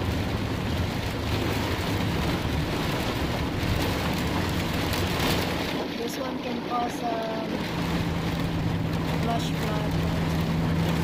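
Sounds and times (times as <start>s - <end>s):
heavy rain on car roof: 0.0s - 11.0s
low car rumble: 0.0s - 11.0s.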